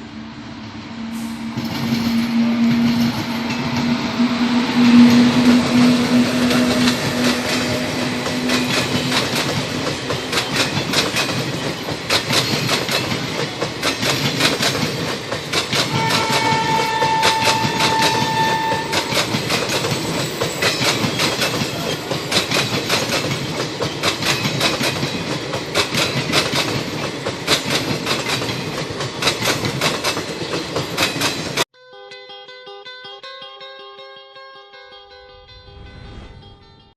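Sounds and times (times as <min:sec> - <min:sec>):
high train horn: 0:00.9 - 0:10.8, 0:15.8 - 0:19.6
train wheels clicking on rails: 0:01.2 - 0:31.7.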